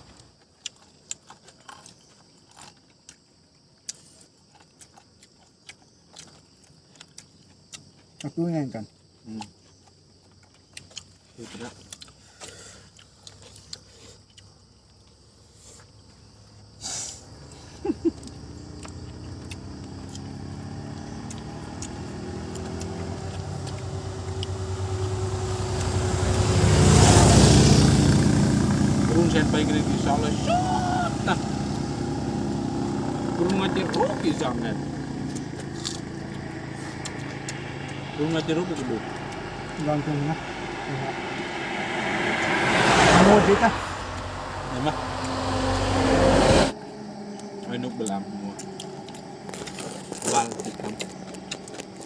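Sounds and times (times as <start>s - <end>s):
vehicle passing on highway: 17.2s - 52.0s.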